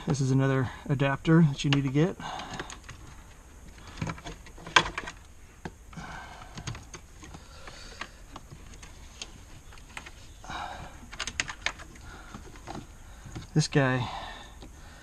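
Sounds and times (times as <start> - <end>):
plastic plugs clicking and rattling: 11.0 - 13.7.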